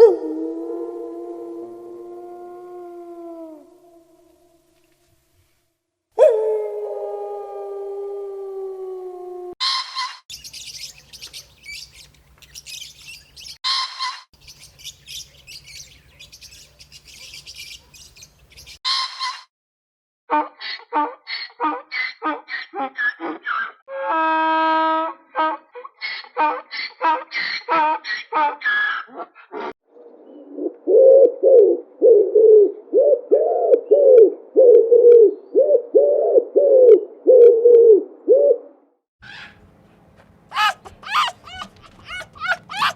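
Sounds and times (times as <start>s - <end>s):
small birds chirping: 10.3s - 13.6s, 14.4s - 18.8s, 40.5s - 42.9s
pigeon cooing: 30.2s - 39.6s, 40.5s - 42.9s
harsh bird call: 40.5s - 42.9s.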